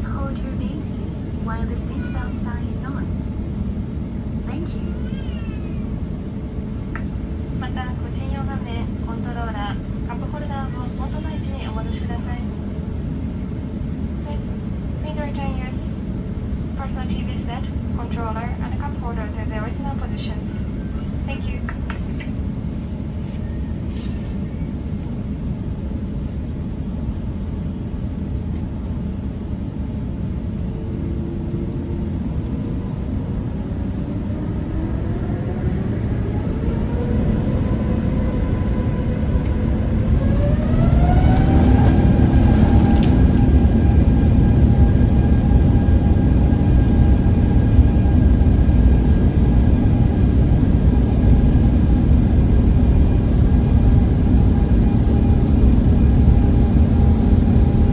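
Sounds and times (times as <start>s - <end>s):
rising engine whine: 20.6s - 57.9s
loud low rumble: 29.2s - 57.9s
jet engines spooling up: 29.9s - 52.0s.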